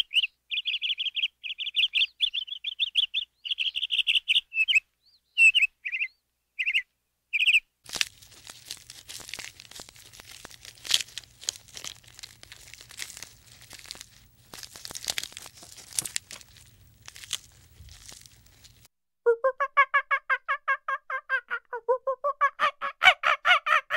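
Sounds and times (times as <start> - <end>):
high bird chirps: 0.0 - 7.6
leaves and twigs rustling and snapping: 7.8 - 18.9.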